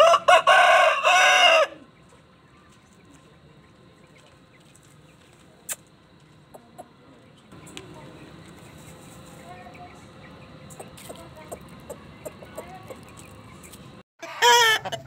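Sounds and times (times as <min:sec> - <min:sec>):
rooster crowing: 0:00.0 - 0:01.9, 0:14.2 - 0:15.0.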